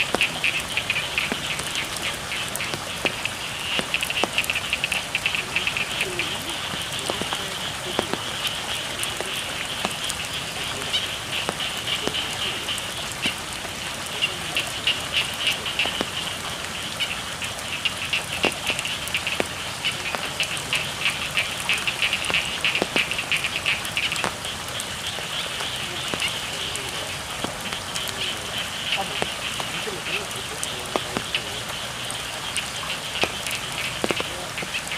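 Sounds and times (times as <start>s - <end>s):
frogs calling: 0.0s - 34.9s
rain on paddies: 0.0s - 34.9s
water drips and ticks: 0.0s - 34.9s.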